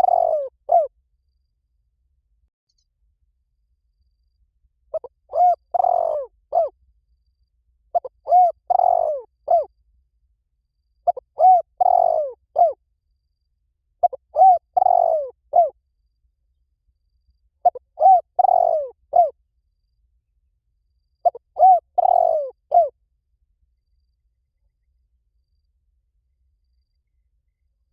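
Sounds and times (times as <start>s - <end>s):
dove cooing: 0.0s - 0.9s, 4.9s - 6.8s, 8.0s - 9.7s, 11.0s - 12.8s, 14.0s - 15.8s, 17.6s - 19.4s, 21.2s - 22.9s.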